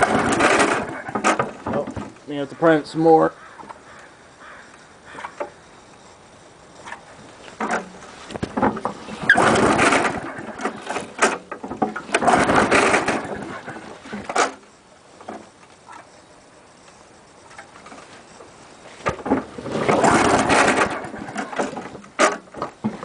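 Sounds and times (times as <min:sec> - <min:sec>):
lawn mower pull-starter cranking: 0:00.0 - 0:02.4, 0:06.8 - 0:16.1, 0:18.9 - 0:23.0.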